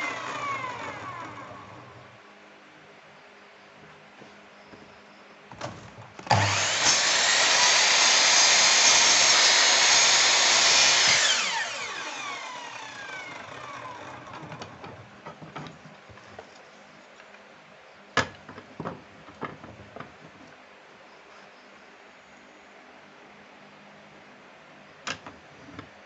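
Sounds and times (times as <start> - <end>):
electric wood router running: 0.0 - 2.1, 6.3 - 14.9.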